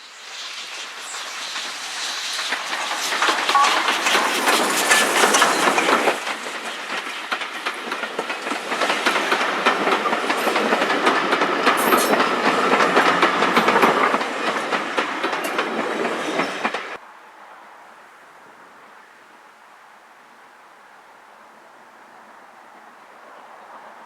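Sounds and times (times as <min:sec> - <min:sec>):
train wheels clattering over rail joints: 0:00.6 - 0:17.0
steady high ring: 0:03.5 - 0:04.5.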